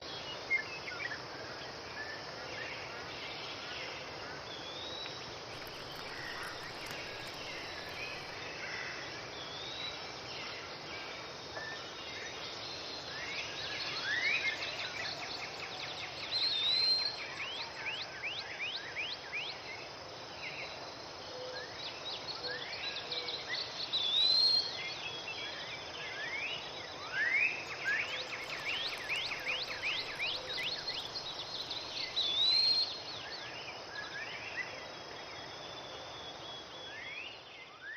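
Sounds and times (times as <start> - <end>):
steady outdoor hiss: 0.0 - 37.9
songbirds whistling and chirping: 27.4 - 33.5.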